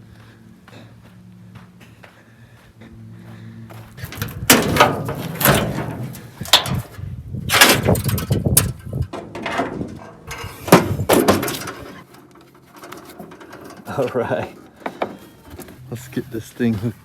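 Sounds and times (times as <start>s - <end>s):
loud clunks and rattles: 4.0s - 15.7s
door opening: 4.0s - 15.8s.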